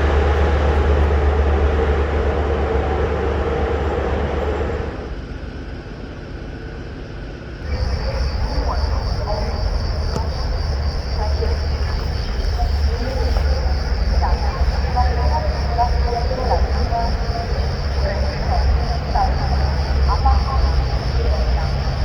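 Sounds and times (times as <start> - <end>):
low hum: 0.0 - 22.0
train passing loudly: 0.0 - 22.0
insect chirring: 7.6 - 22.0.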